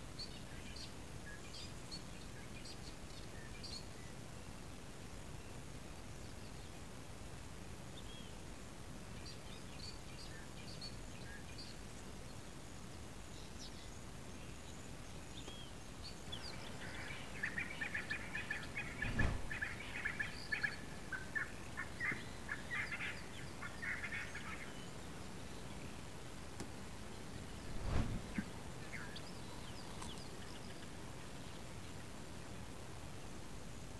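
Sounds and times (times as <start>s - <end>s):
birds chirping: 15.5s - 25.8s
low thump: 19.0s - 19.6s, 27.7s - 28.4s.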